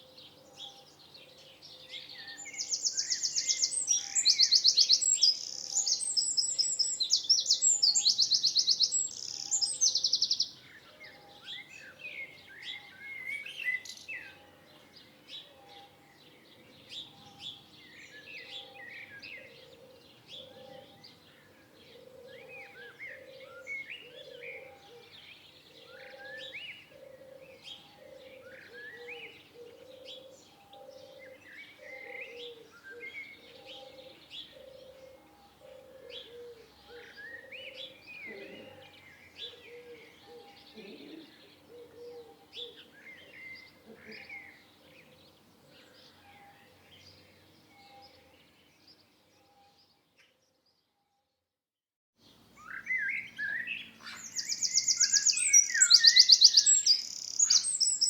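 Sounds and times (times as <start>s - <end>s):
birds chirping: 0.0s - 50.3s, 52.2s - 58.0s
bird trilling song: 0.0s - 50.4s, 52.2s - 58.0s.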